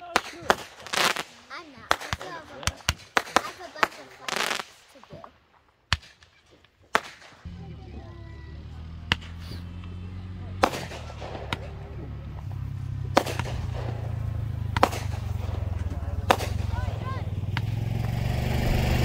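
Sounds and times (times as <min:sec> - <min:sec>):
firework bangs: 0:00.0 - 0:19.0
low engine hum: 0:07.5 - 0:19.0.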